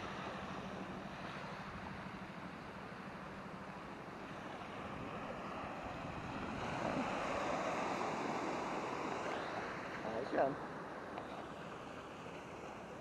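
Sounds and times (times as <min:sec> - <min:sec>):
surf washing onto beach: 0:04.2 - 0:13.0.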